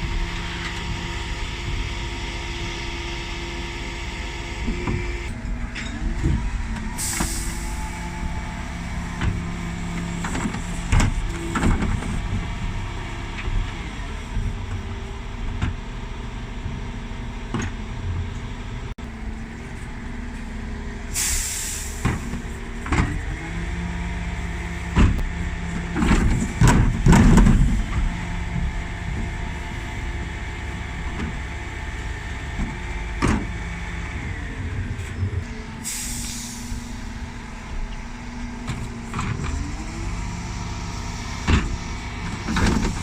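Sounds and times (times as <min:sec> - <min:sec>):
lorry engine running: 0:00.0 - 0:43.0
air brake hiss: 0:07.0 - 0:08.8, 0:21.1 - 0:22.2, 0:35.7 - 0:37.1
bins knocking and clattering: 0:25.8 - 0:29.2.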